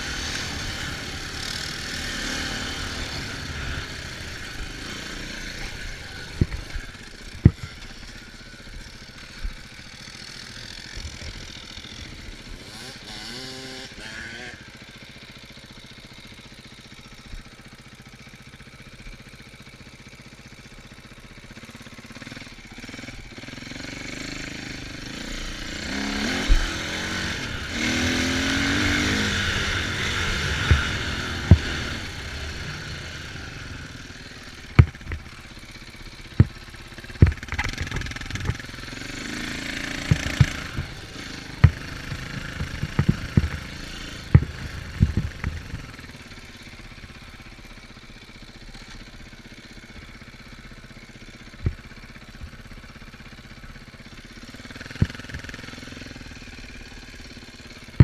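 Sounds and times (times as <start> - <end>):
off-road vehicle engine revving: 0.0 - 16.3, 21.6 - 58.0
short sharp thumps: 28.9 - 32.7, 34.7 - 35.4, 37.2 - 38.7, 39.7 - 46.0.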